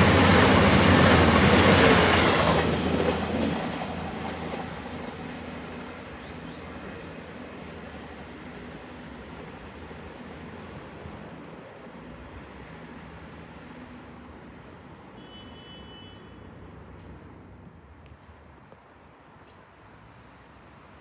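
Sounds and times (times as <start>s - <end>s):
distant diesel train rumble: 0.0s - 15.9s.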